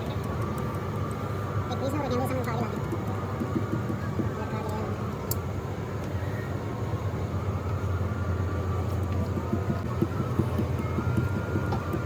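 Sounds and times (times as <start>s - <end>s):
low machine hum: 0.0s - 12.0s
light knocks and taps: 2.7s - 4.4s, 9.0s - 12.0s.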